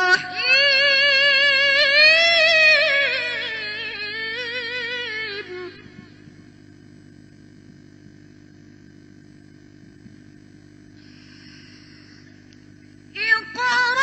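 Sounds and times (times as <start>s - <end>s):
low electrical hum: 0.0s - 14.0s
soft hiss: 5.2s - 14.0s.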